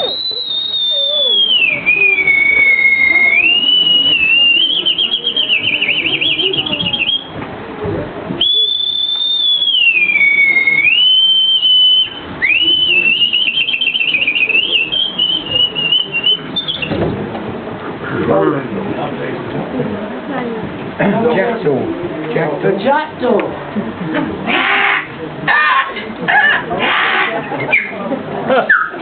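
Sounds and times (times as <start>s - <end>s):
man whistling birdsong imitation: 0.0s - 7.3s, 8.4s - 17.0s.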